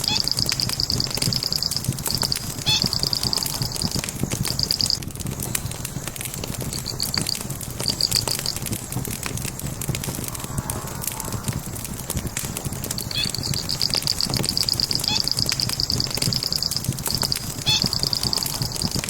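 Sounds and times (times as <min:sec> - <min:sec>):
rapid high chirps: 0:00.0 - 0:05.0, 0:06.7 - 0:08.6, 0:13.0 - 0:19.0
log fire crackling and popping: 0:00.0 - 0:19.0.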